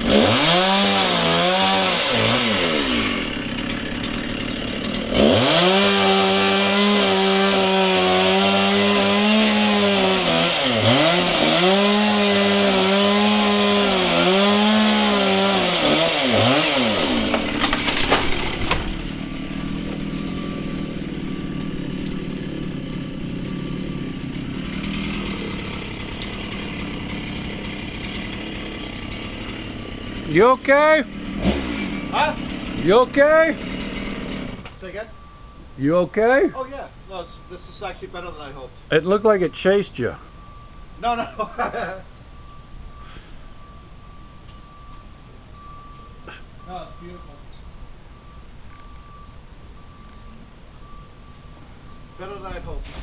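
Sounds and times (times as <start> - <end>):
tree cracking and snapping: 0.0 - 19.3
chainsaw revving and cutting: 0.0 - 34.6.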